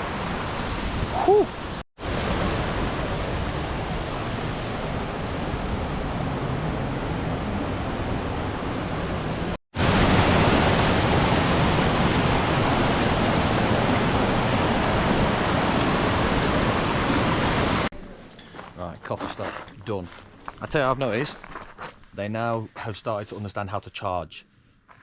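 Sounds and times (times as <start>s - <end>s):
waterfall rushing: 0.9s - 17.9s.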